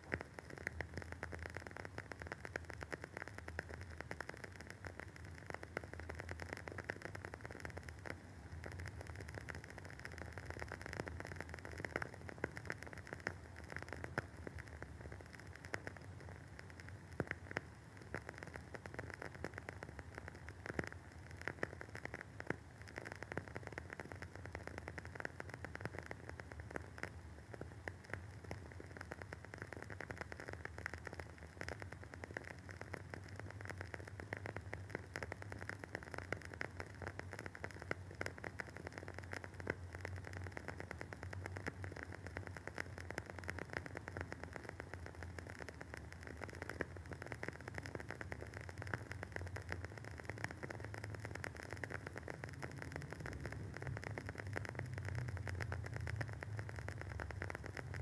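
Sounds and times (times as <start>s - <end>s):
wooden wick crackling: 0.0s - 58.0s.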